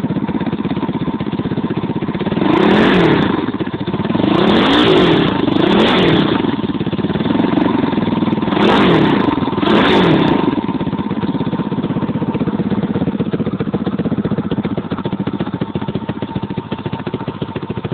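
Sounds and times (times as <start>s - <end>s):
dirt bike engine revving: 2.2s - 14.1s.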